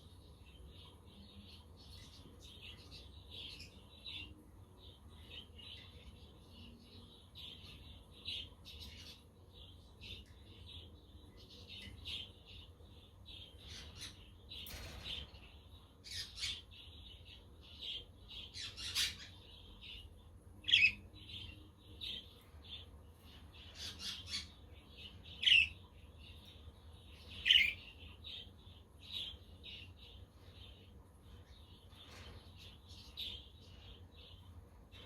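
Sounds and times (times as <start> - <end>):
budgerigars chirping and warbling: 16.1 - 35.0.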